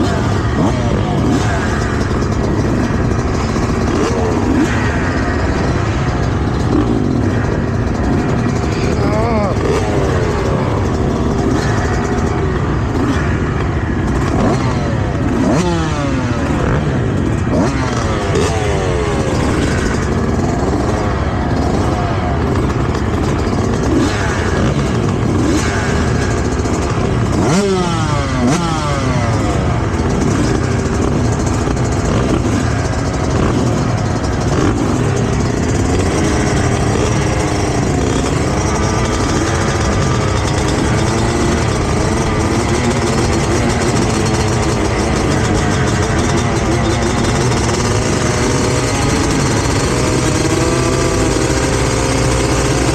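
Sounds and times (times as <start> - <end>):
dirt bike engines revving: 0.0 - 52.9.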